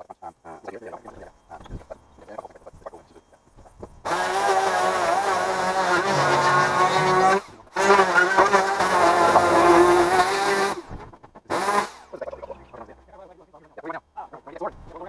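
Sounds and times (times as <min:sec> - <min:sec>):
chainsaw running at high revs: 0:04.1 - 0:12.1.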